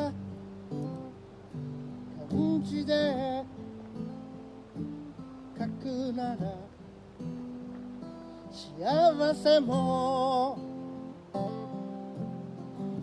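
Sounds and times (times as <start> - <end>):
acoustic guitar strumming: 0.0 - 13.0
person singing: 2.2 - 3.6, 8.5 - 11.2.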